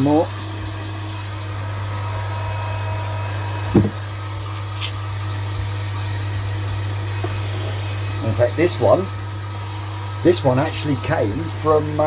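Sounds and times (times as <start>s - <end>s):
electric air pump humming: 0.0s - 12.0s
short knock: 3.8s - 4.0s.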